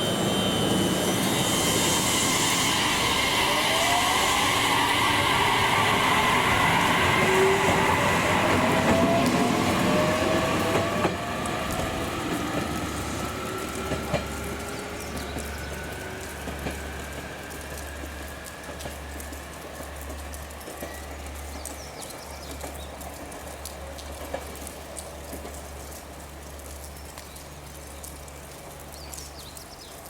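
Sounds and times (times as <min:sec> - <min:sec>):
faint rising whine: 0:00.0 - 0:12.3
train running: 0:00.0 - 0:30.0
wheels clicking over rail joints: 0:03.0 - 0:30.0.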